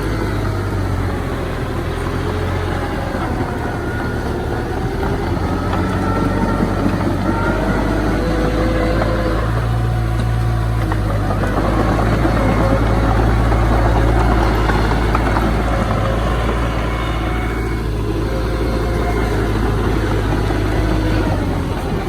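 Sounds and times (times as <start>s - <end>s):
heavy machinery engine running: 0.0s - 22.0s.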